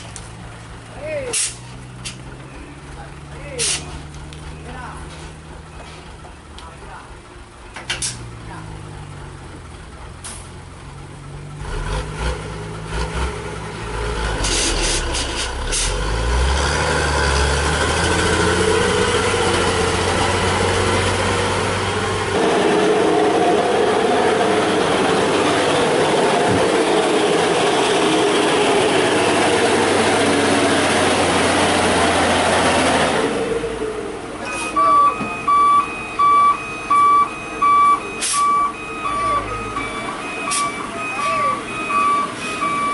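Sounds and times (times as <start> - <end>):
truck diesel engine labouring: 0.0 - 42.9
reversing beeper: 34.4 - 42.9.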